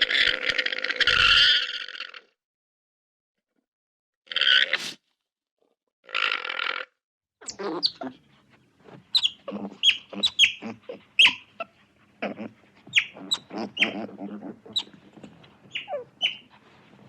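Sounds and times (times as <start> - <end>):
sharp high animal calls: 6.2 - 8.2, 9.1 - 16.6.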